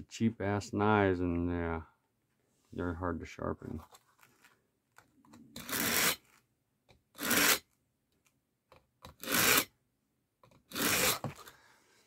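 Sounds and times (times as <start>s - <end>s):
knife rasping through sharpener: 5.6s - 6.2s, 7.2s - 7.6s, 9.2s - 9.7s, 10.7s - 11.3s.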